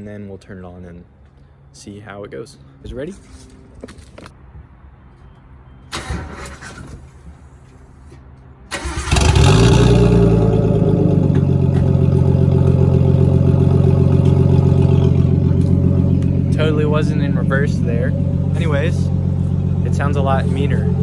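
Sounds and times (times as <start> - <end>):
car engine cranking and idling: 5.9 - 21.0.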